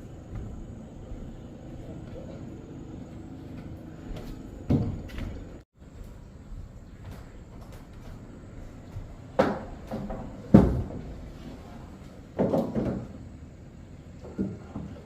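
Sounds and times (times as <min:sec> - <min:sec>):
objects knocking and thudding: 0:04.6 - 0:05.6, 0:08.9 - 0:13.4, 0:14.2 - 0:15.0.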